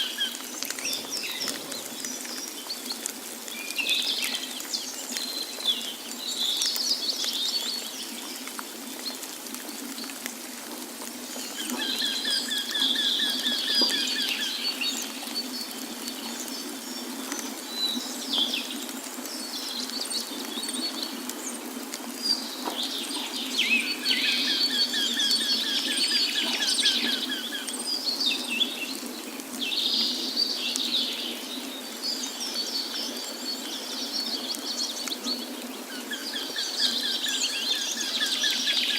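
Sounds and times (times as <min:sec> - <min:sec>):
rushing water: 0:00.0 - 0:38.9
birds singing and chirping: 0:11.3 - 0:18.8, 0:22.2 - 0:38.9.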